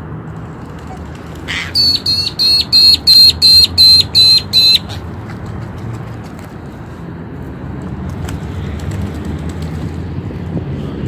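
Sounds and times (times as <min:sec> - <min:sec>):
bird calling sharp high notes: 0:01.5 - 0:05.0.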